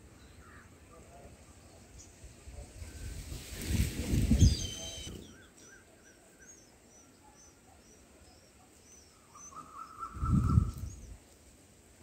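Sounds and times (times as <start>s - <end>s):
small birds chirping: 4.3s - 11.4s.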